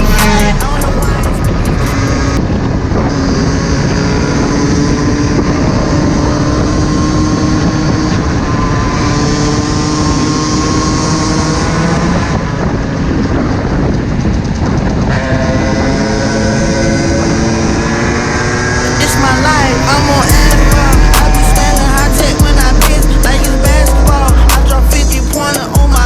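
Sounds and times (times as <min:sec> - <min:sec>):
dirt bike engine running: 0:00.0 - 0:26.0
wind rushing over microphone: 0:00.0 - 0:26.0.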